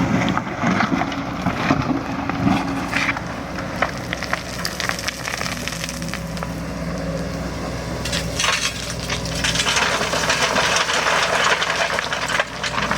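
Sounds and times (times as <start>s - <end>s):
excavator diesel engine running: 0.0s - 12.9s
crunching and cracking: 0.1s - 6.6s.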